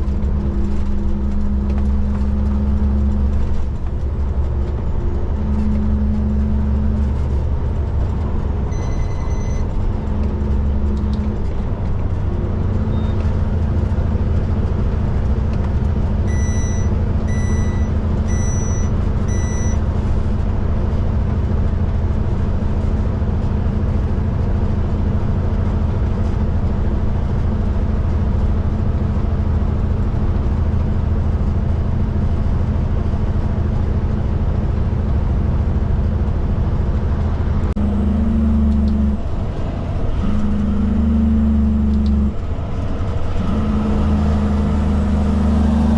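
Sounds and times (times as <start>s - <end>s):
diesel truck engine running: 0.0s - 45.9s
high electronic beep: 8.7s - 9.6s, 16.3s - 19.8s.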